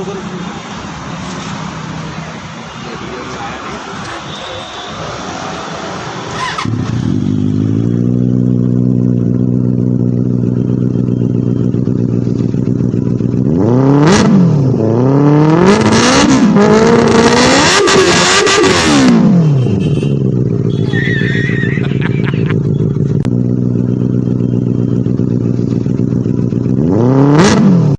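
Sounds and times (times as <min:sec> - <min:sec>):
motorcycle engine idling and revving: 0:00.0 - 0:27.9.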